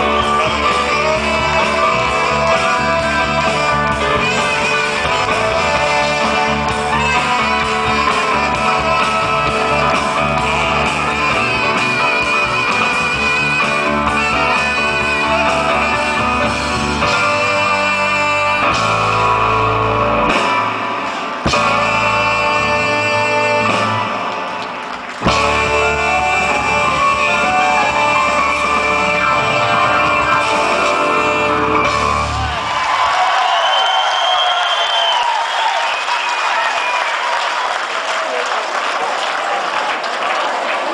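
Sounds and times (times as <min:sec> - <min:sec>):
electric guitar: 0:00.0 - 0:32.7
live band music: 0:00.0 - 0:37.3.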